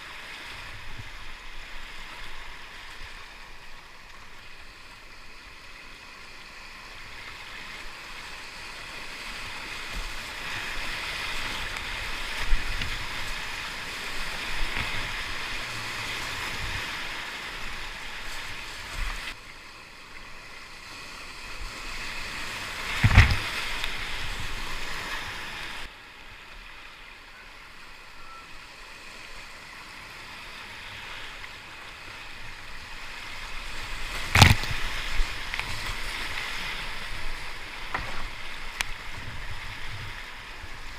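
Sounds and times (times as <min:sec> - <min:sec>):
paddle splashes: 0:06.8 - 0:19.4, 0:21.4 - 0:25.9, 0:32.3 - 0:40.9
whitewater rushing: 0:07.0 - 0:19.4, 0:21.5 - 0:25.9, 0:31.3 - 0:40.9.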